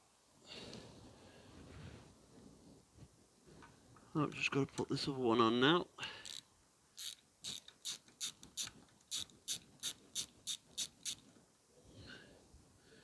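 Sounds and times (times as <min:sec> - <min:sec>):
faint rustle: 0:00.6 - 0:04.1
ratchet clicking: 0:06.2 - 0:06.4, 0:07.0 - 0:11.2.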